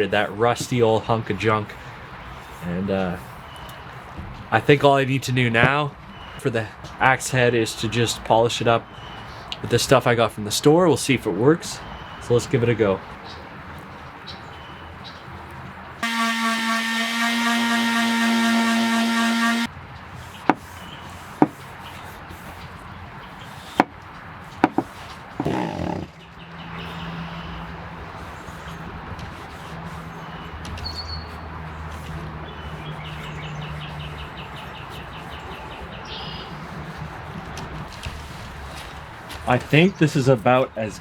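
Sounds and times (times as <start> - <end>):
low steady hum: 16.0 - 19.7
scraping burst: 16.0 - 19.7
small motor running: 16.0 - 19.7.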